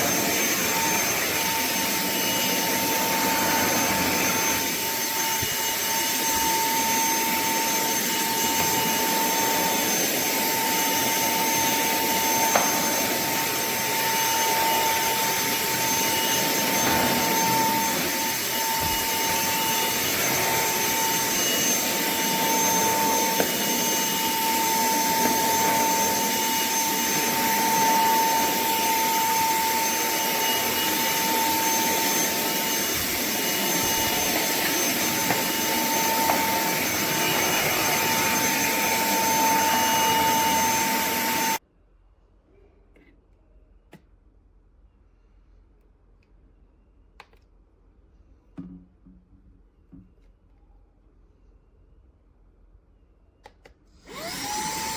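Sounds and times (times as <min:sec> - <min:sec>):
handheld vacuum cleaner running: 0:00.0 - 0:41.6, 0:54.0 - 0:54.9.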